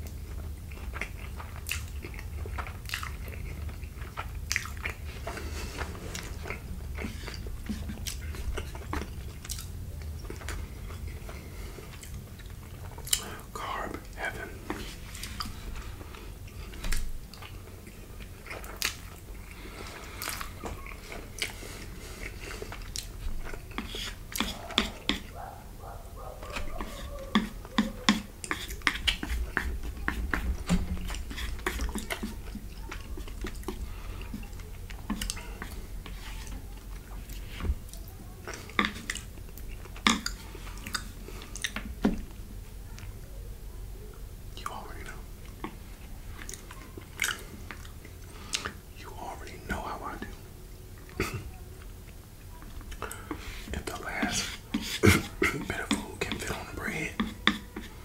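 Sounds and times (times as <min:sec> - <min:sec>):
chewing and biting food: 0:00.0 - 0:42.4, 0:45.4 - 0:48.8.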